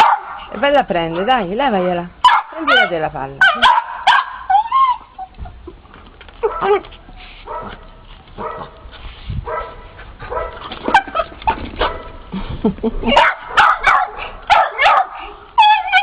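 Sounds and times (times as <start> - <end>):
dog whining and yipping: 4.2 - 5.8, 15.6 - 16.0.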